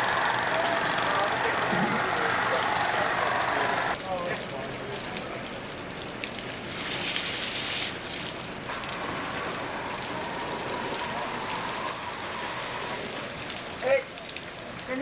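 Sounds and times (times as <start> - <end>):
fire hose water spraying: 0.0 - 15.0
thin steady tone: 8.7 - 14.0.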